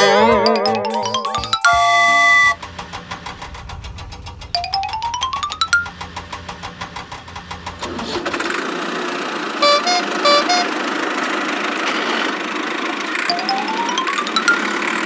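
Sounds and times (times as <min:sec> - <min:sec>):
cartoon engine sound: 0:00.0 - 0:02.7, 0:03.4 - 0:06.2, 0:09.6 - 0:10.9, 0:13.1 - 0:15.0
short horn beeps: 0:01.7 - 0:02.6, 0:09.6 - 0:10.7.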